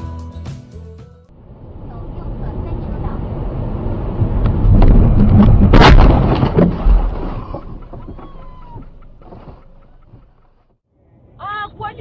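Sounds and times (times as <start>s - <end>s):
heavy rumbling noise: 1.4s - 7.6s
car crash: 4.2s - 10.3s.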